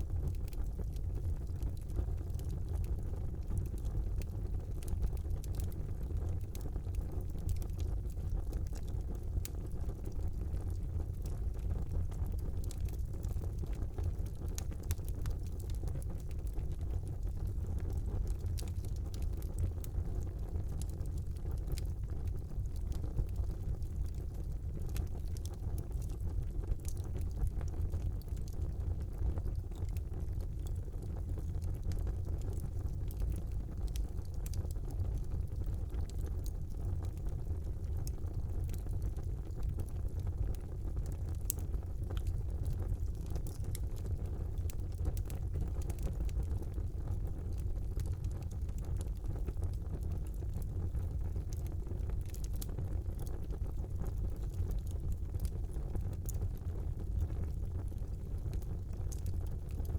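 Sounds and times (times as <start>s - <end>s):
fire crackling and popping: 0.0s - 59.9s
fire flames rumbling: 0.0s - 59.9s.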